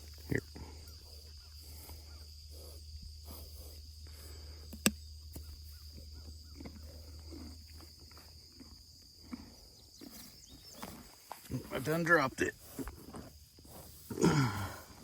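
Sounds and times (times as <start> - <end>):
donkeys chewing carrots: 0.0 - 15.0
high insect drone: 0.0 - 15.0
sharp click: 4.7 - 5.0.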